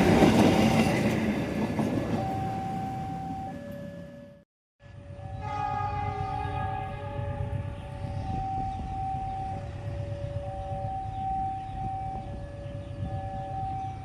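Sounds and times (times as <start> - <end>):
train rumbling: 0.0 - 14.0
two-tone warning sound: 2.2 - 4.4.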